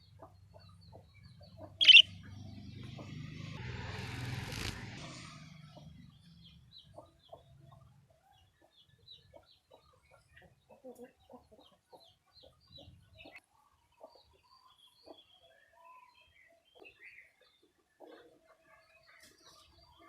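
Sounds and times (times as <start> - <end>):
budgerigar chirping: 1.6 - 2.2.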